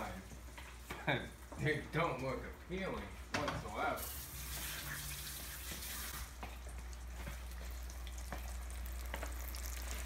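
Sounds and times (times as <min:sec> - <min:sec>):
food deep-frying in oil: 0:03.7 - 0:10.0.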